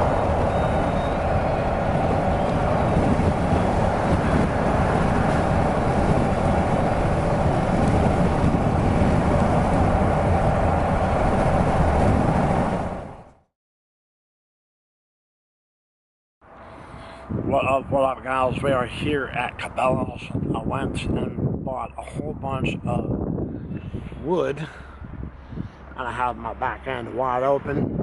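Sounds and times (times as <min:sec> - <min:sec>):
vehicle running rumble: 0:00.0 - 0:13.4.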